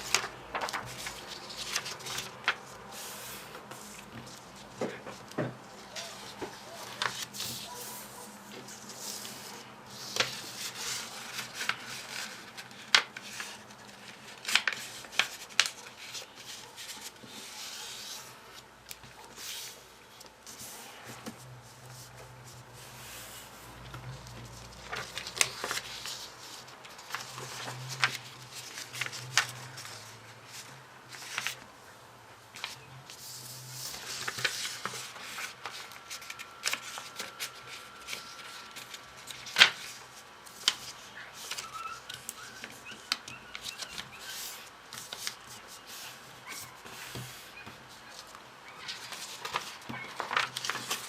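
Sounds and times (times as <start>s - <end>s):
paper rustling and snapping: 0.0s - 2.8s, 3.4s - 17.5s, 23.8s - 30.0s, 33.8s - 45.7s, 46.6s - 51.0s.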